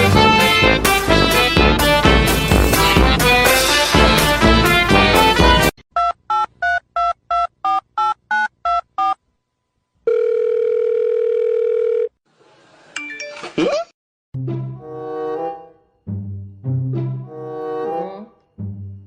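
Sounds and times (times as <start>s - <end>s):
telephone ringing tone: 10.0s - 12.2s.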